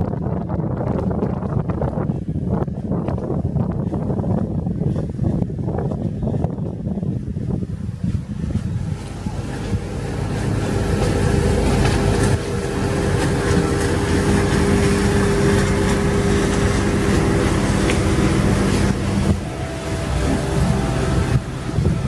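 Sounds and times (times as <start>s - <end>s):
boat engines humming: 0.0s - 22.0s.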